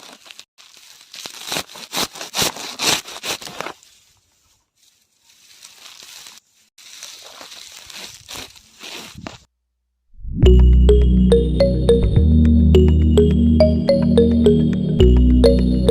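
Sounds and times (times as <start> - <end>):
crunching and crackling: 0.0 - 3.9, 4.8 - 9.5.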